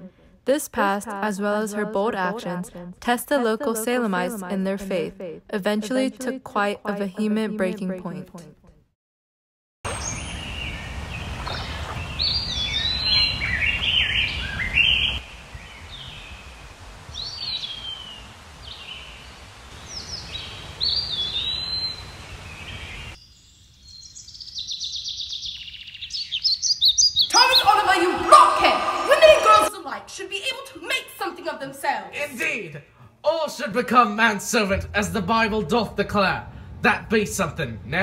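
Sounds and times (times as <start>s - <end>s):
birds chirping and singing: 9.9s - 15.2s, 19.8s - 29.7s.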